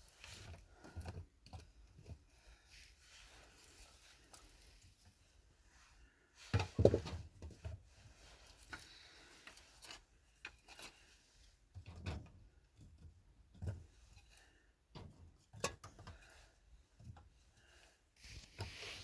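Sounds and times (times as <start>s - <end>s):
objects knocking and scraping: 6.6s - 7.8s.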